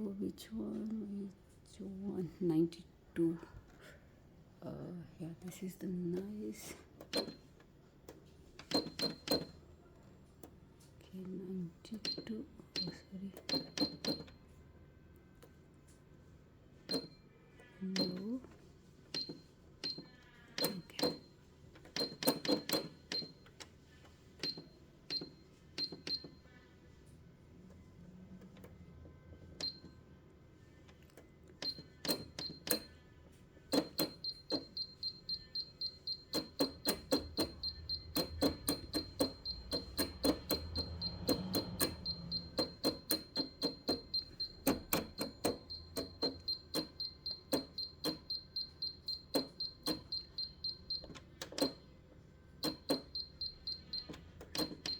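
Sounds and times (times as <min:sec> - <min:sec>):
sewing machine sewing: 0:33.7 - 0:51.8
short high beeps: 0:33.8 - 0:51.8.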